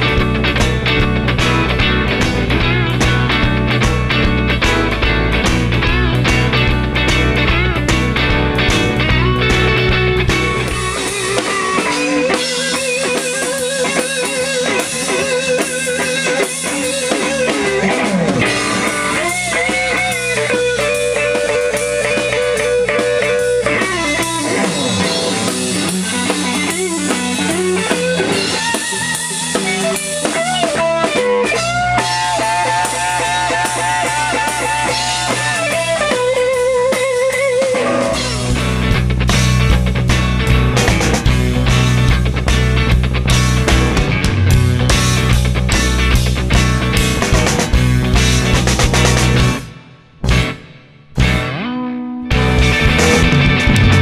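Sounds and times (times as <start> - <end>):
deep bass: 0.0 - 11.7, 38.1 - 51.6, 52.3 - 54.0
drum kit: 0.0 - 51.7, 52.3 - 54.0
electric lead guitar: 0.0 - 54.0.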